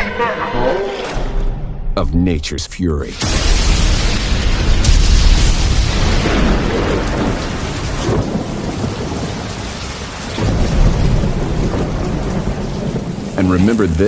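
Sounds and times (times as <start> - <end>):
heavy rain falling: 3.2 - 14.0
rolling thunder rumbling: 3.2 - 14.0.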